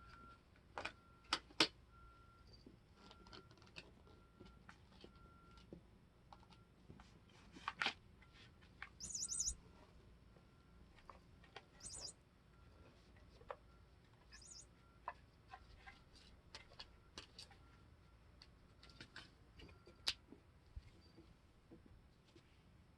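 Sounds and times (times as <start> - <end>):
electronic bird toy tweeting: 9.0 - 9.6, 11.7 - 12.2, 14.3 - 14.7.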